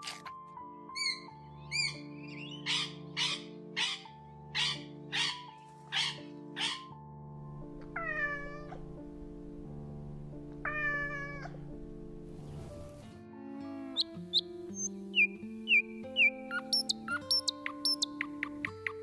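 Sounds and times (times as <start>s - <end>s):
background music: 0.0s - 19.0s
parrot squawking: 1.0s - 6.9s
cat meowing: 8.0s - 8.8s, 10.6s - 11.6s.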